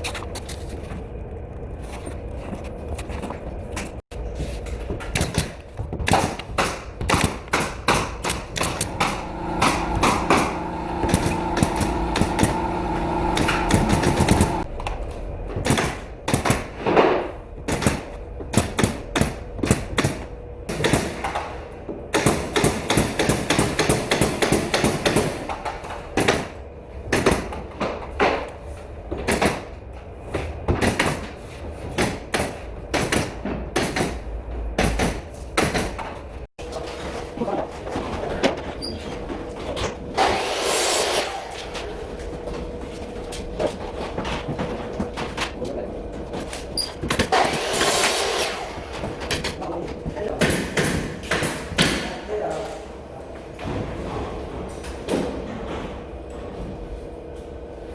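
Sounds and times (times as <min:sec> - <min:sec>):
machine hum: 0:08.4 - 0:15.6.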